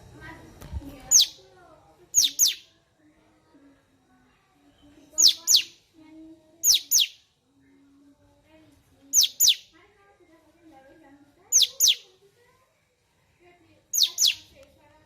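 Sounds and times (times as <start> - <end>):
bulbul whistling calls: 2.2 - 2.6, 9.2 - 9.6.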